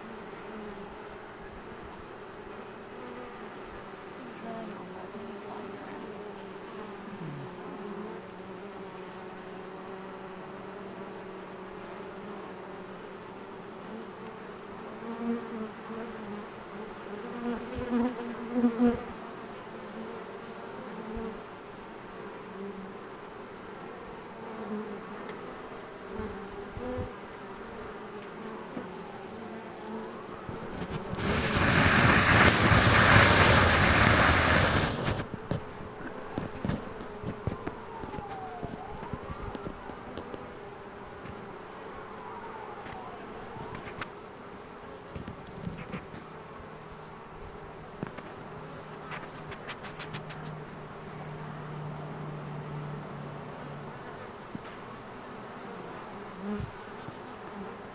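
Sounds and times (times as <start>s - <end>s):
bee swarm buzzing: 0.0s - 57.9s
bees flying close by: 0.0s - 57.9s
loud rushing noise: 30.7s - 35.3s.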